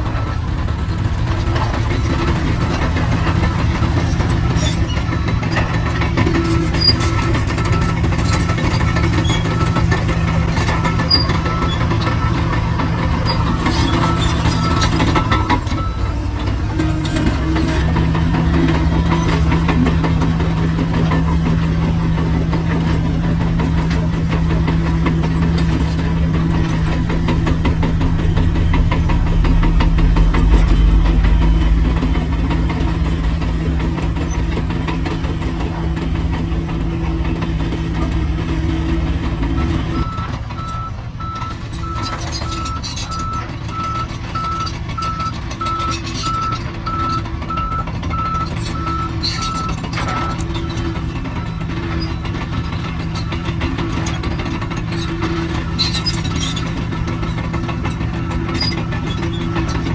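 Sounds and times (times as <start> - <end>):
diesel machinery rumbling: 0.0 - 59.9
reversing alarm beeping: 2.2 - 35.6, 39.5 - 52.4.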